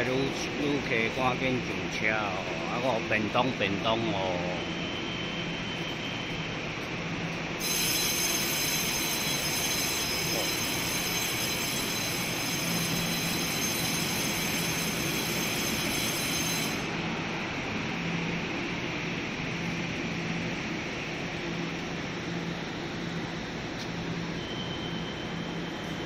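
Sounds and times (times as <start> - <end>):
train low rumble: 0.0 - 26.0
train high-pitched squeal: 4.2 - 6.9, 7.6 - 17.0, 24.0 - 26.0.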